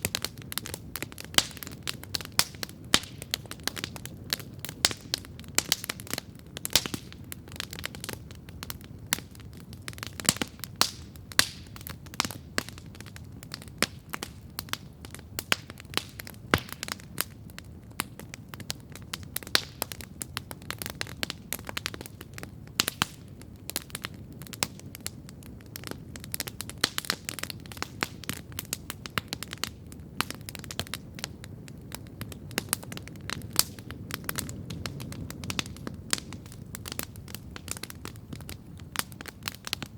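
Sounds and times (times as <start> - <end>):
campfire crackling: 0.0 - 39.9
sharp pops and snaps: 9.9 - 12.8, 13.6 - 17.1.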